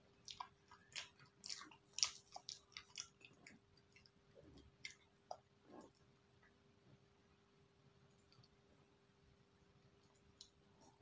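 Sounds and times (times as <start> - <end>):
mouth chewing wetly: 0.0 - 6.1, 10.0 - 11.0.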